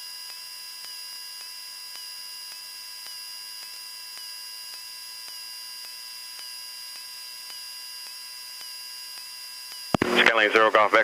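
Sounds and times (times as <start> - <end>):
electrical hum and whine: 0.0 - 11.0
radio hiss: 9.9 - 11.0.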